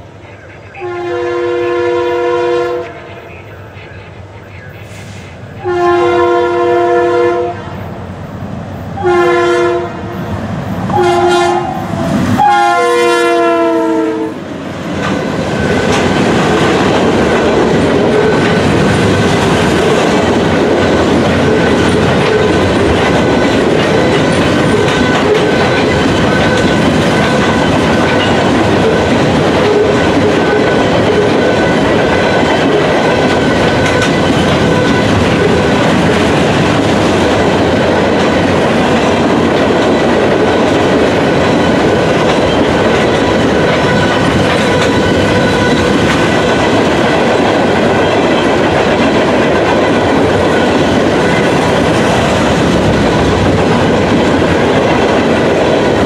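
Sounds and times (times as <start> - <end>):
locomotive horn blasts: 0.7 - 3.4, 4.8 - 7.8, 9.0 - 10.1, 10.9 - 11.8, 12.4 - 14.4, 43.7 - 45.9
freight train clickety-clack: 9.0 - 56.0.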